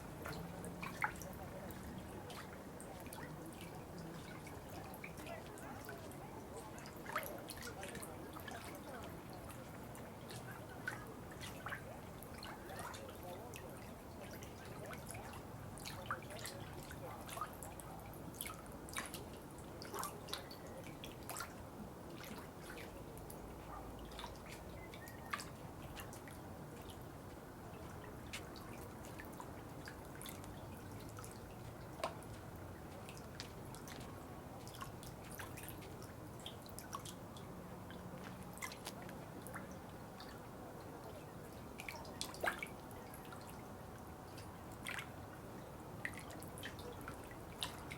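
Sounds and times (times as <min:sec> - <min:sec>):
soft water sound: 0:00.0 - 0:47.9
water dripping: 0:27.7 - 0:47.9.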